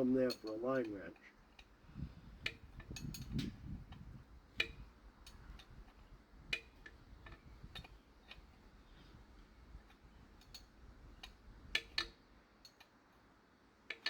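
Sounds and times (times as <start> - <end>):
wrench clicking on metal: 0.2 - 1.7, 2.4 - 8.5, 9.9 - 12.9.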